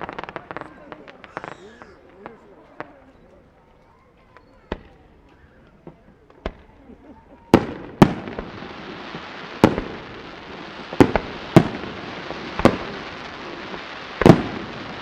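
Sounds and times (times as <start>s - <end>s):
firework shells bursting: 7.6s - 15.0s.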